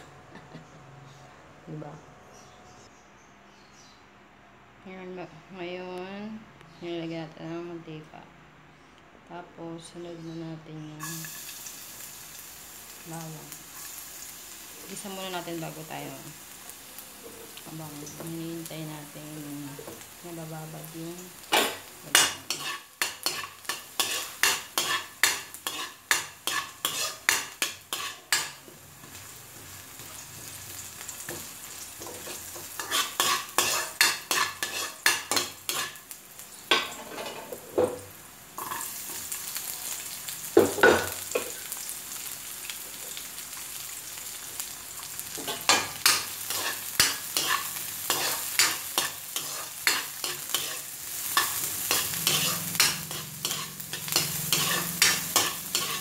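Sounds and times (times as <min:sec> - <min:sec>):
frying sizzle: 0:11.0 - 0:56.0
metal spoon scraping a wok: 0:21.7 - 0:29.2, 0:32.0 - 0:36.0, 0:45.4 - 0:56.0.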